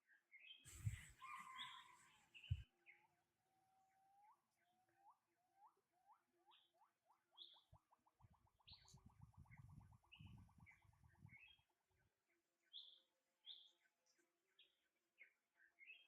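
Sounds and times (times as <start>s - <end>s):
birds chirping: 0.4s - 2.6s.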